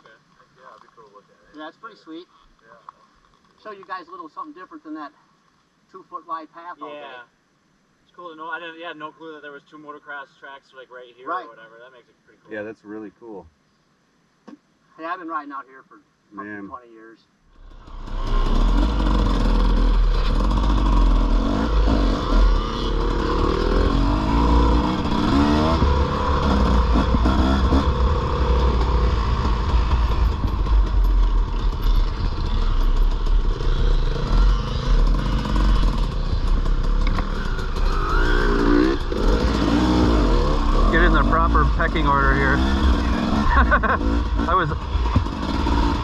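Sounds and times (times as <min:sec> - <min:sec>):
dirt bike engine revving: 0:17.6 - 0:46.0.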